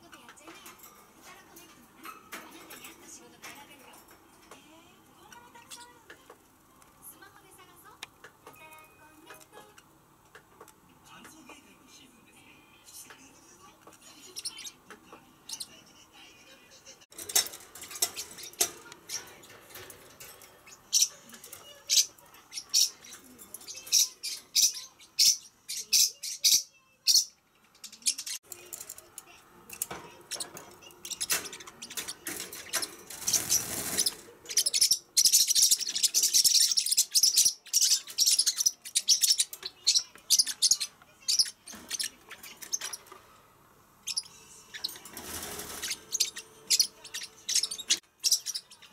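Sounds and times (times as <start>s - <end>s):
parrot chirping: 17.2s - 28.5s, 30.1s - 48.9s.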